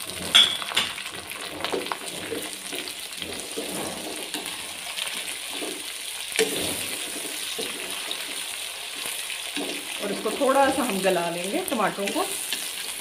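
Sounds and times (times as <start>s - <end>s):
vegetables sizzling in hot oil: 0.0s - 13.0s
spatula scraping against pan: 1.6s - 10.9s.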